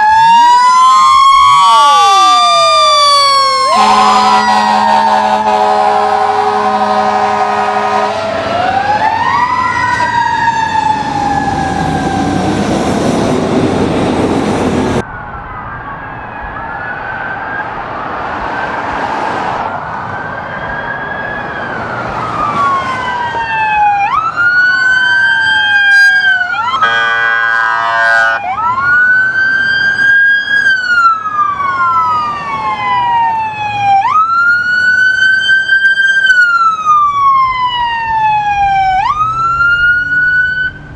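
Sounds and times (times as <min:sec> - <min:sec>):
emergency sirens wailing: 0:00.0 - 0:40.9
horn chord: 0:03.8 - 0:08.2, 0:26.8 - 0:28.4.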